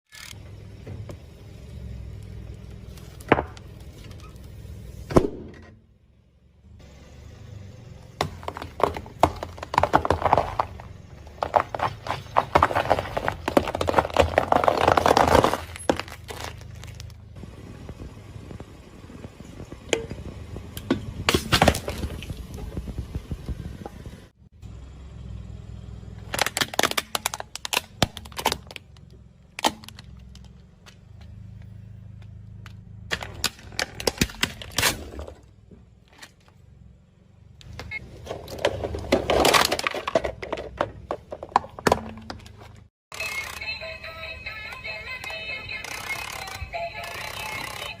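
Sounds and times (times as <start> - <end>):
car low rumble: 0.1 - 48.0
tyre crunching brittle objects: 8.4 - 17.3, 26.2 - 31.0.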